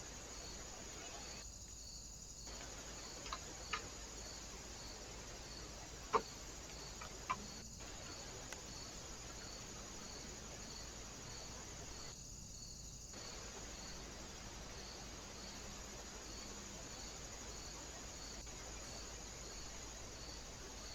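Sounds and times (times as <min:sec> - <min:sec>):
cricket chirping: 0:00.0 - 0:20.9.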